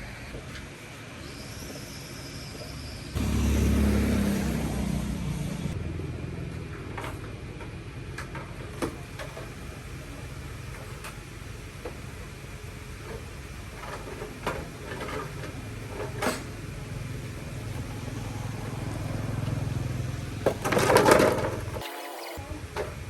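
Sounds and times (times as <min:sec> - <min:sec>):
motor running: 0:15.0 - 0:23.0.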